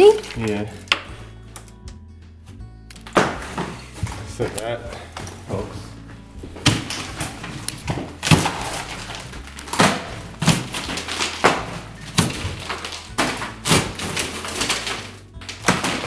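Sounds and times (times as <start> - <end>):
drywall board breaking: 2.9 - 5.8, 6.5 - 16.0
heavy blows on drywall: 3.2 - 16.0.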